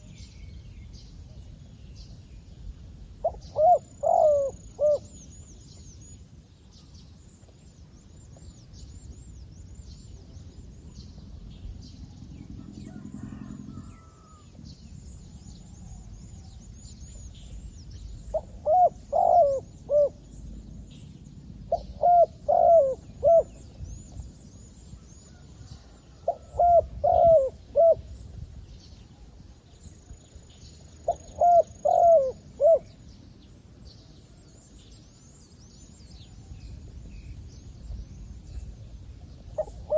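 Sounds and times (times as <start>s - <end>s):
dove cooing: 3.2s - 5.1s, 18.3s - 20.2s, 21.7s - 23.6s, 26.2s - 28.1s, 31.0s - 33.0s, 39.5s - 39.9s.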